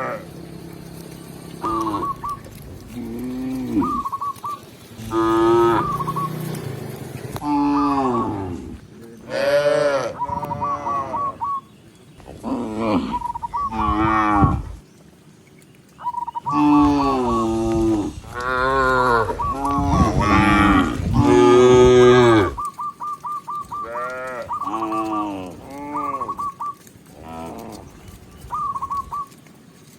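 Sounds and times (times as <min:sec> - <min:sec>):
cattle mooing: 0:00.0 - 0:04.2, 0:04.9 - 0:11.4, 0:12.3 - 0:14.8, 0:16.4 - 0:22.7, 0:23.8 - 0:28.1.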